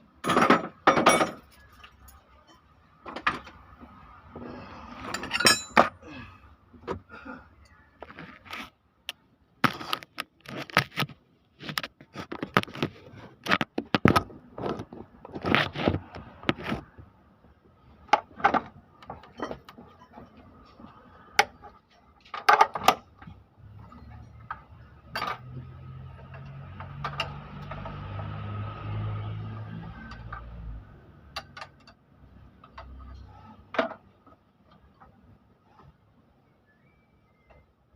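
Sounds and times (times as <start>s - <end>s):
metal tools clinking and scraping: 0.2s - 2.6s, 5.0s - 6.0s, 19.2s - 20.9s.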